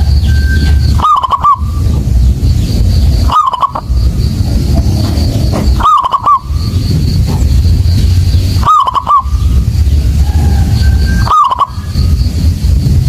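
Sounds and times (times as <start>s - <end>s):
dove cooing: 0.0s - 2.0s, 3.2s - 4.2s, 4.8s - 7.0s, 8.6s - 12.0s
low rumble: 0.0s - 13.0s.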